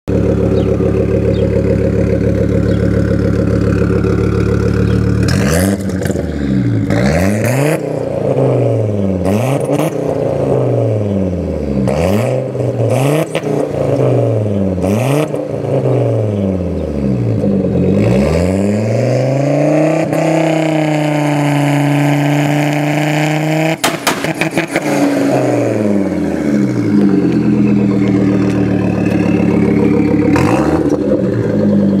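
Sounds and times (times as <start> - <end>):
engine revving: 0.1 - 32.0
exhaust pops: 23.7 - 24.9.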